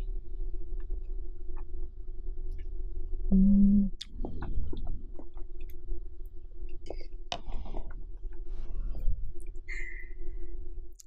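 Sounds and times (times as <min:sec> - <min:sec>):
electric fan hum: 0:00.0 - 0:11.0
person humming: 0:03.3 - 0:04.0.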